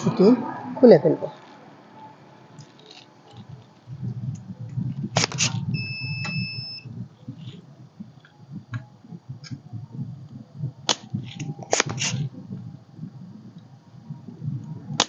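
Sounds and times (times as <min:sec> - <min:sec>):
steady low hum: 0:00.0 - 0:15.0
electronic beep: 0:05.6 - 0:07.6.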